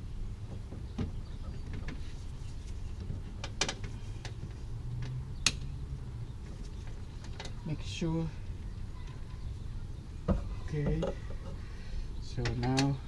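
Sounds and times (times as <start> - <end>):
radiator hose clicks and knocks: 3.0 - 5.6, 10.2 - 11.6, 12.3 - 13.0.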